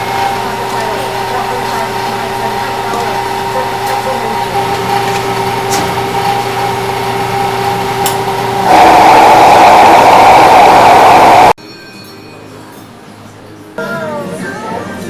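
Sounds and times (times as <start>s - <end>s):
mechanical hum with held tones: 0.0s - 11.6s
loud rushing noise: 8.6s - 11.6s.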